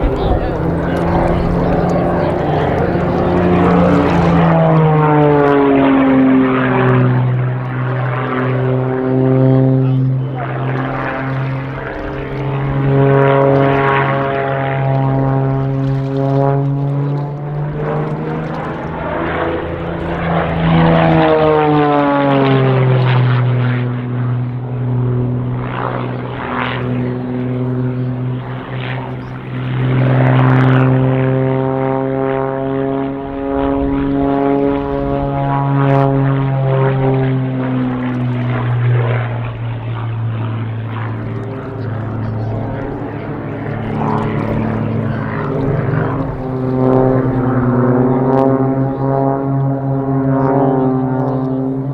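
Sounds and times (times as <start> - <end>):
propeller aircraft engines droning: 0.0 - 51.9.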